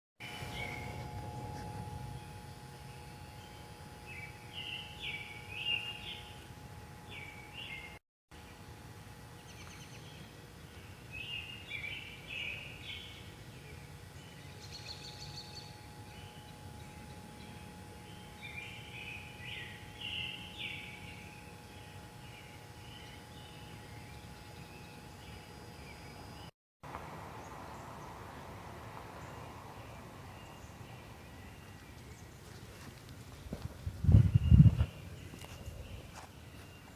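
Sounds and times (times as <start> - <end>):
light fixture buzzing hum: 0.2 - 36.9
birds chirping: 26.9 - 36.9.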